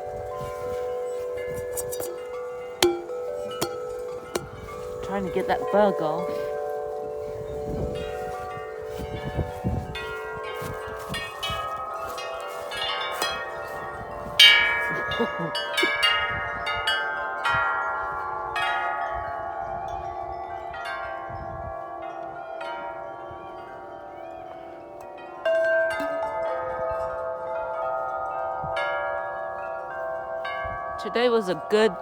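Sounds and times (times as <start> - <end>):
wind rumbling on microphone: 0.0 - 22.1, 30.4 - 31.0
tubular wind chimes ringing: 0.0 - 32.0.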